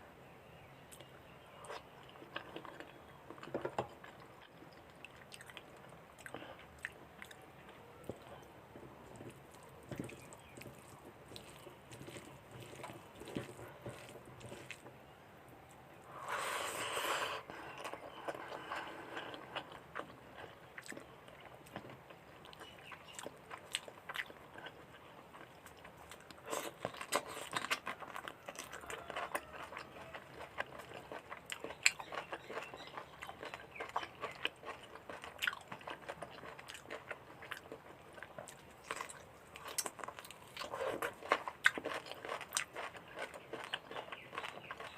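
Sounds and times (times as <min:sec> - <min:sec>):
person chewing food: 0:00.9 - 0:14.9, 0:15.7 - 0:44.9
crunchy bites: 0:25.3 - 0:44.9.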